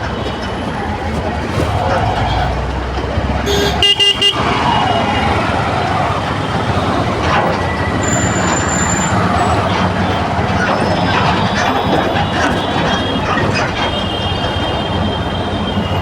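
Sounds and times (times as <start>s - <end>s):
traffic rumble: 0.0s - 16.0s
vehicle horn beeps: 3.4s - 16.0s.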